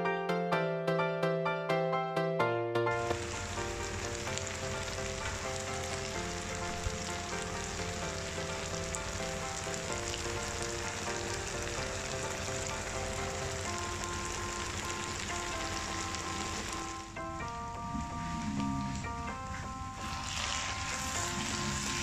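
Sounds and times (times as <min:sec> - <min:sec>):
soft background music: 0:00.0 - 0:22.0
food sizzling in hot oil: 0:03.0 - 0:17.2, 0:19.9 - 0:22.0.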